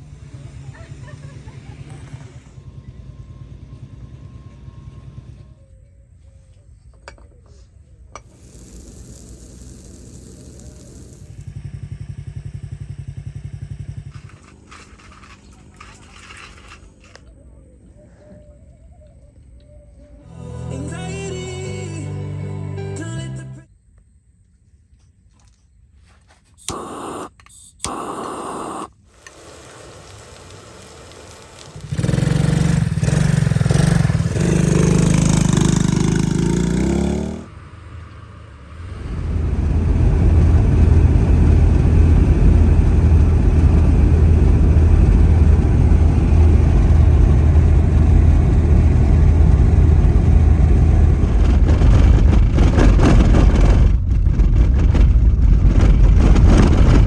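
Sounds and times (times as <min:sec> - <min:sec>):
vehicle engine and road noise: 0:00.0 - 0:18.0, 0:26.3 - 0:57.0
steady humming: 0:26.6 - 0:36.4.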